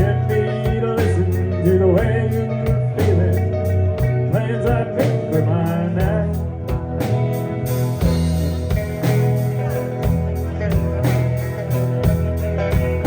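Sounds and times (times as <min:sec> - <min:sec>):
country band playing: 0:00.0 - 0:13.0
steady drum beat: 0:00.0 - 0:13.0.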